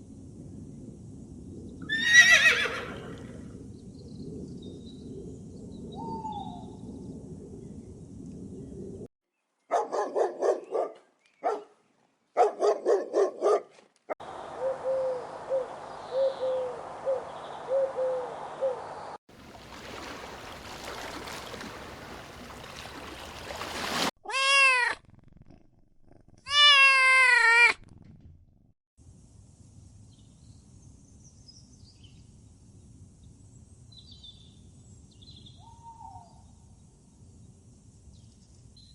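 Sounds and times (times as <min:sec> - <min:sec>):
short repeated animal cries: 0:26.5 - 0:27.8.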